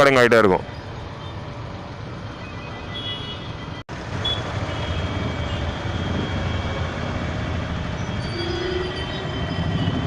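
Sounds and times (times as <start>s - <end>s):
road traffic rumble: 0.0s - 10.0s
wind and road hiss: 3.9s - 10.0s.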